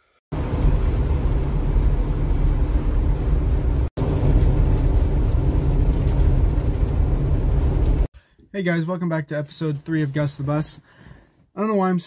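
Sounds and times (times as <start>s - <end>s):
bus engine and road rumble: 0.4s - 8.1s.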